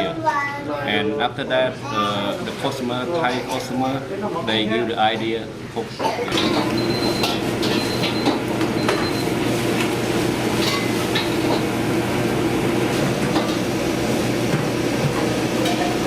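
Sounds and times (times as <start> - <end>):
steady loud burner roar: 1.2 - 16.0
metal cookware clattering: 6.3 - 8.4, 10.6 - 11.7, 15.6 - 16.0.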